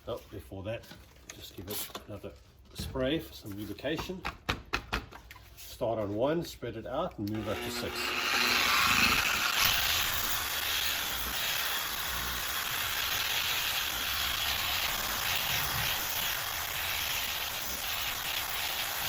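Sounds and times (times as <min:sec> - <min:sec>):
polisher buffing plastic: 0:07.3 - 0:19.0.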